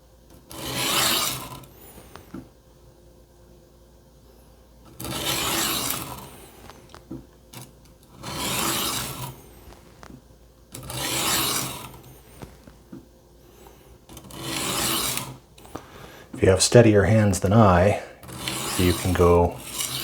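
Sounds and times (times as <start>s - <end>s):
knife scraping on sharpening stone: 8.2s - 9.4s, 10.8s - 12.0s, 14.2s - 15.4s, 18.2s - 20.0s.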